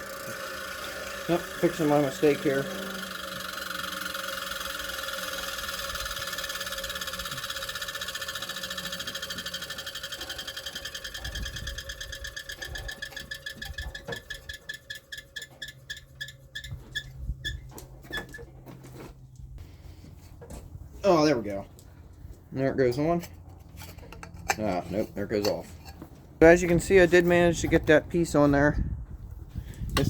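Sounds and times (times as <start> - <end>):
power tool motor whirring: 0.0 - 18.4.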